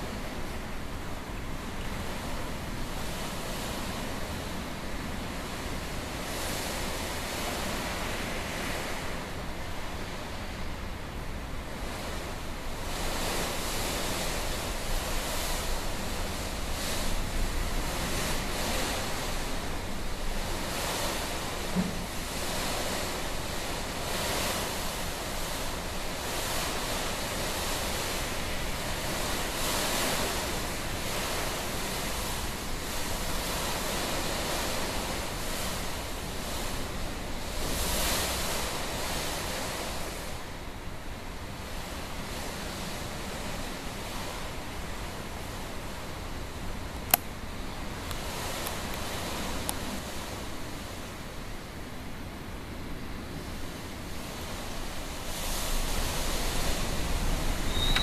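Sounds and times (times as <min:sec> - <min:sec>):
strong gusting wind: 0:53.2 - 0:58.0.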